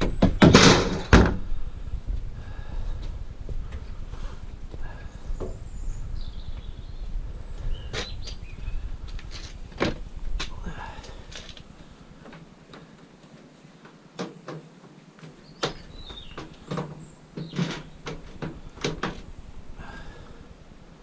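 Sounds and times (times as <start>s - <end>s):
scrap metal knocks and clanks: 0.0s - 1.4s.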